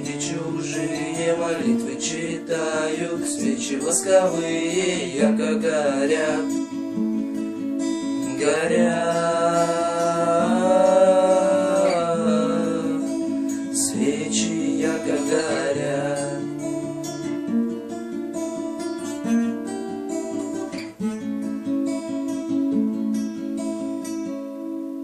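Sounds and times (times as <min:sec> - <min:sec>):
acoustic guitar picking: 0:00.0 - 0:25.0.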